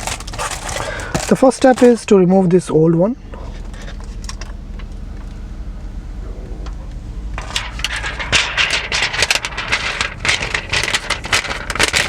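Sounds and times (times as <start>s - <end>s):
plastic film peeling and crackling: 0.0s - 2.0s, 7.4s - 12.0s.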